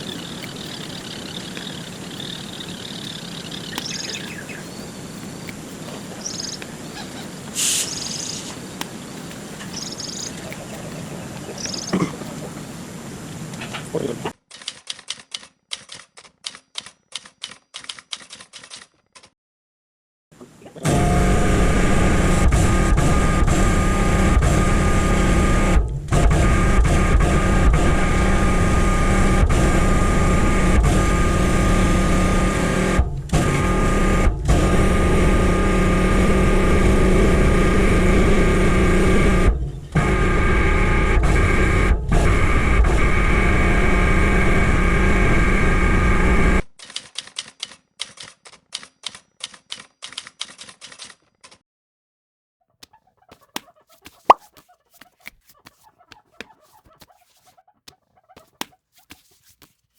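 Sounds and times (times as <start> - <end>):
water jet spraying: 0.0 - 13.4.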